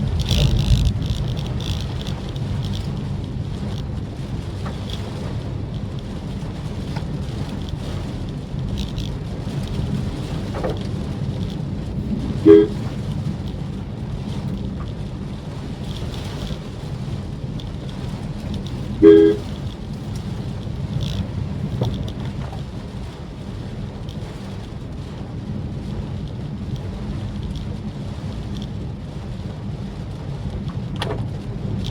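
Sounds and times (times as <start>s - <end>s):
car driving rumble: 0.0s - 31.9s
short car horn toot: 12.4s - 12.9s, 19.0s - 19.5s.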